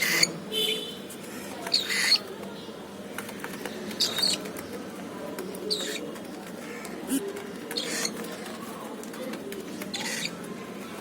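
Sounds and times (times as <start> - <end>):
cockatiel chirps: 1.7 - 2.2.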